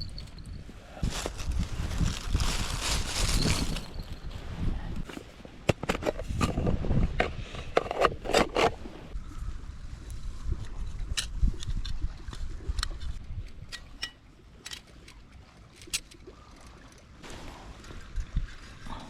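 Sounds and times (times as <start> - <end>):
rustling and scraping handling: 0.0 - 8.9.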